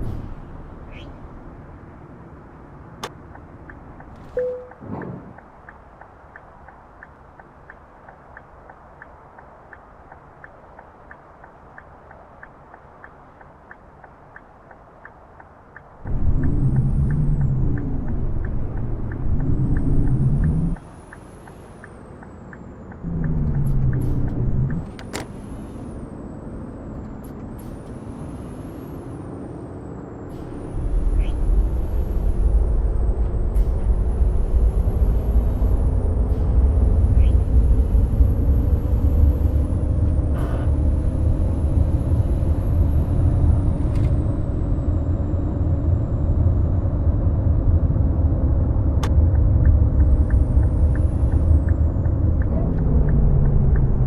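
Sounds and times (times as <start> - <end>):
bus diesel engine revving: 23.0 - 54.0.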